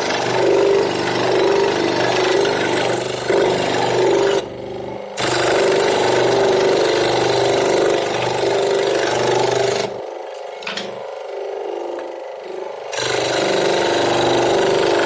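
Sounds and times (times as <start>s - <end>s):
power tool sanding wood: 0.0s - 4.4s.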